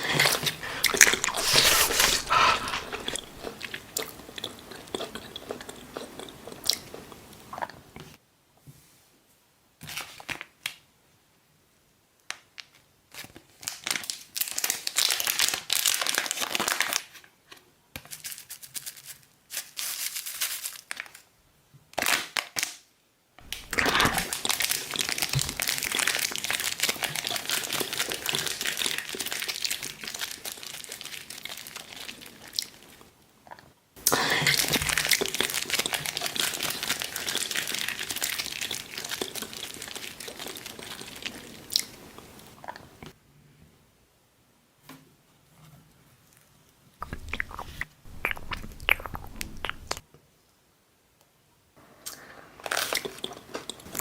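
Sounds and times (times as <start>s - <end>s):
crunchy pizza chewing: 0.0s - 7.8s, 23.4s - 33.0s, 34.1s - 43.1s, 47.0s - 50.0s, 52.1s - 54.0s.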